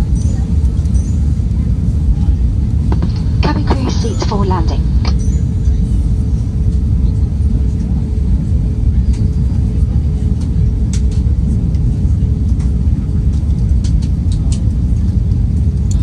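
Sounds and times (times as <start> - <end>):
low rumble of engines and airflow: 0.0 - 16.0
faint steady hum: 2.3 - 8.0.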